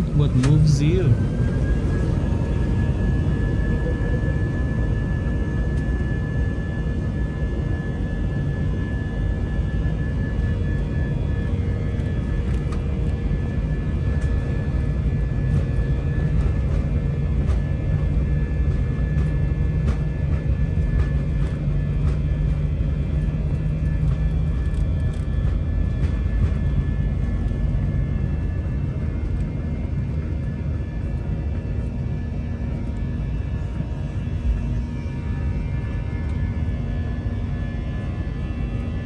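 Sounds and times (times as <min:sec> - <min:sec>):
higher hum: 0:00.0 - 0:02.8
jet engine rumble in cabin: 0:00.0 - 0:39.0
low engine drone: 0:00.0 - 0:39.0.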